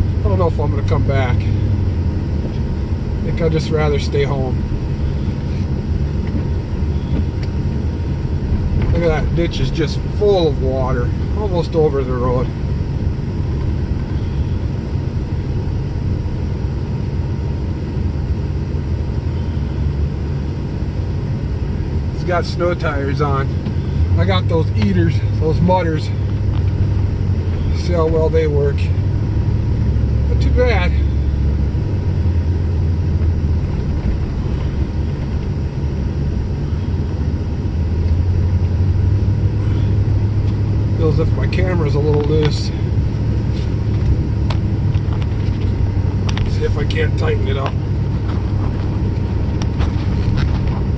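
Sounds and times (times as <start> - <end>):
vehicle engine rumble: 0.0 - 50.9
tyre noise on wet road: 38.0 - 50.9.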